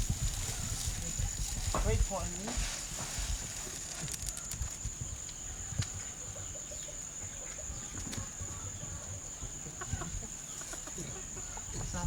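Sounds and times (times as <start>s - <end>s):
chickens clucking: 6.0s - 12.0s.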